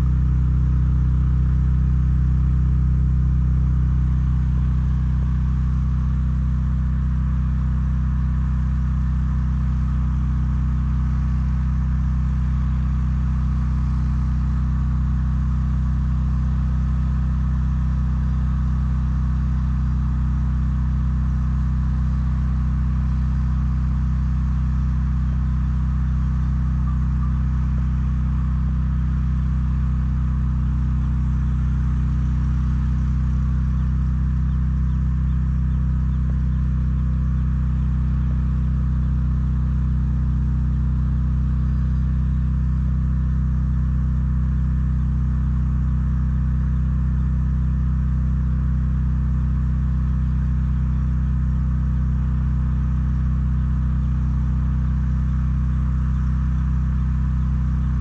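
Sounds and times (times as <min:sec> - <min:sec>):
low engine hum: 0:00.0 - 0:58.0.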